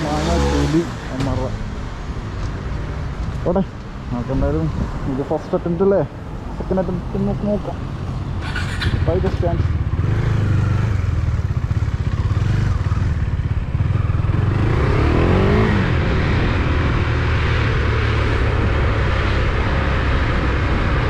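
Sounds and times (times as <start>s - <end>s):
motorcycle pulling away: 0.0s - 1.5s, 8.4s - 20.6s.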